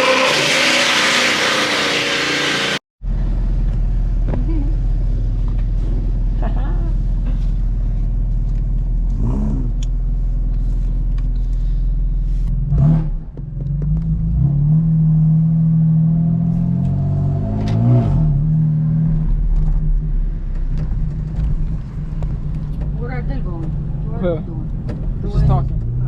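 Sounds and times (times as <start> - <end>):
car engine running: 0.4 - 14.4.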